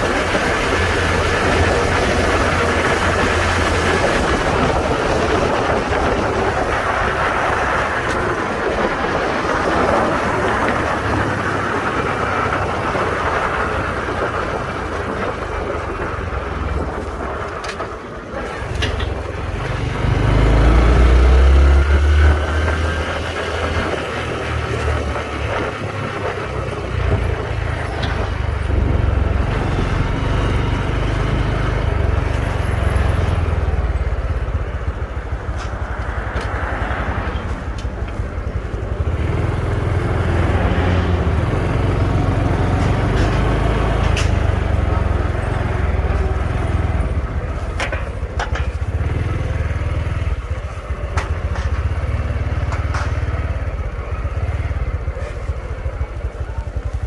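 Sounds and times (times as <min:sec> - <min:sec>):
motorcycle engine running: 0:00.0 - 0:57.0
wind rumble on microphone: 0:00.0 - 0:57.0
sharp clicks and rattles: 0:41.2 - 0:57.0.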